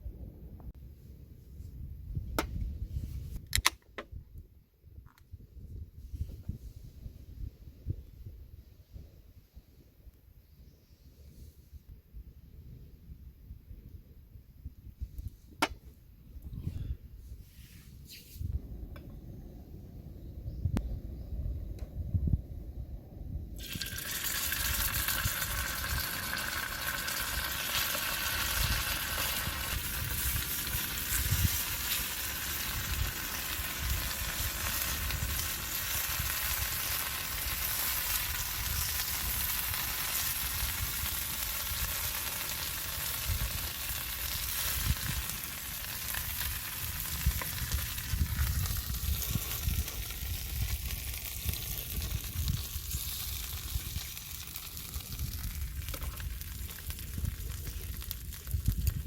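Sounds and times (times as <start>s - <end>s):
food sizzling in a hot pan: 23.6s - 50.0s.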